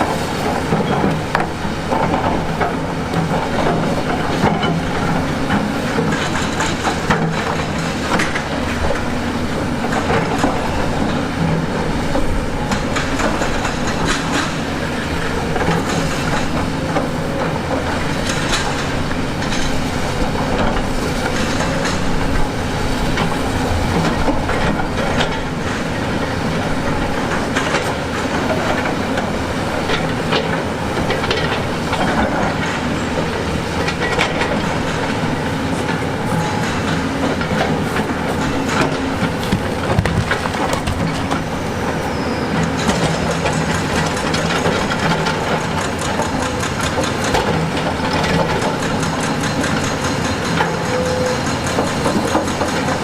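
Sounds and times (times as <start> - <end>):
diesel engine running: 0.0 - 48.8
metallic clanks and knocks: 35.8 - 41.4.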